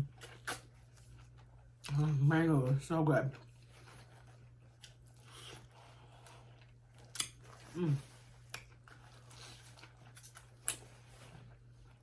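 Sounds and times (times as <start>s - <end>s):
low steady hum: 0.0s - 12.0s
wet mouth clicks chewing: 4.7s - 7.7s.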